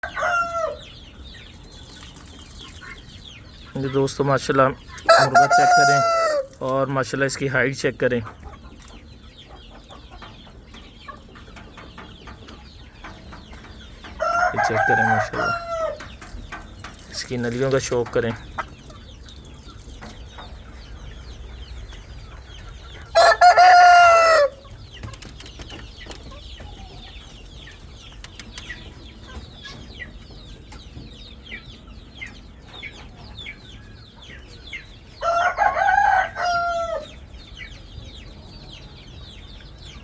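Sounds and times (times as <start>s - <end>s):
rooster crowing: 0.0s - 0.8s, 5.1s - 6.5s, 14.2s - 16.0s, 23.1s - 24.6s, 35.2s - 37.1s.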